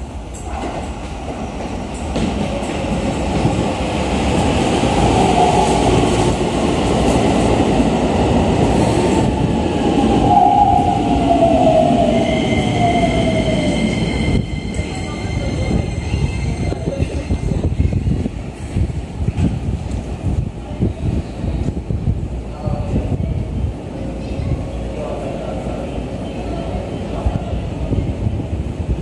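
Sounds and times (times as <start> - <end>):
train wheels on rail: 0.0 - 22.3.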